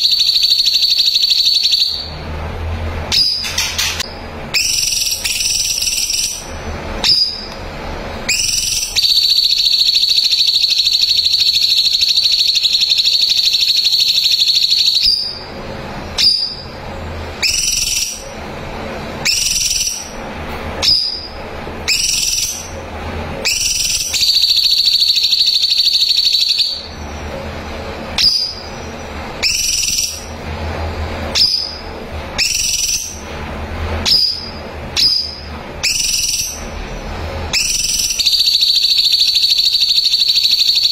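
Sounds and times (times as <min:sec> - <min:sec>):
bird whistling and trilling: 0:00.0 - 0:02.1, 0:03.1 - 0:07.5, 0:08.3 - 0:15.4, 0:16.2 - 0:16.6, 0:17.4 - 0:18.3, 0:19.2 - 0:20.2, 0:20.8 - 0:21.3, 0:21.9 - 0:22.8, 0:23.4 - 0:27.0, 0:28.2 - 0:28.8, 0:29.4 - 0:30.3, 0:31.3 - 0:31.8, 0:32.4 - 0:33.2, 0:34.0 - 0:36.7, 0:37.5 - 0:40.9.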